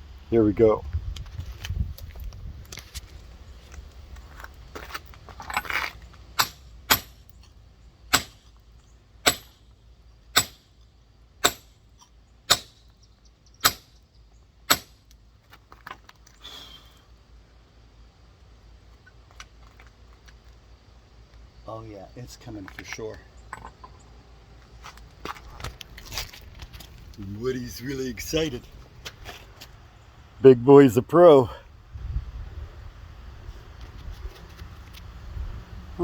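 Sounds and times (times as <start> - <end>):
rock scraping: 1.4 - 7.4
hammer tapping rock: 9.3 - 9.5, 11.4 - 11.7, 14.7 - 15.0.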